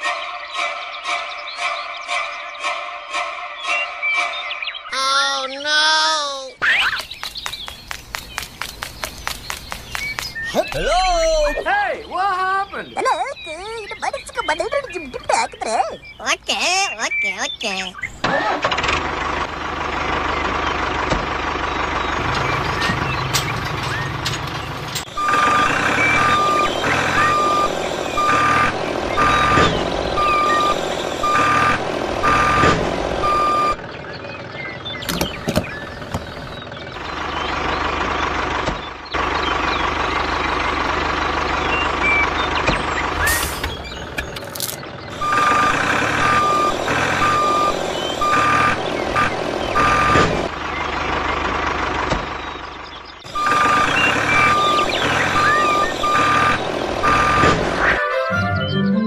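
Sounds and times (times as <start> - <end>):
vehicle engine running: 6.7 - 15.3, 17.0 - 58.0
reversing alarm beeping: 25.1 - 33.8, 41.6 - 44.4, 45.1 - 50.3, 53.3 - 58.0.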